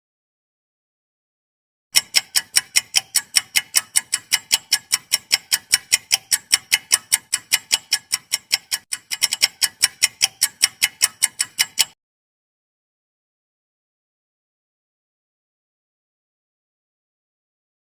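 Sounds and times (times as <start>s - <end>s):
clock ticking: 1.9s - 12.0s.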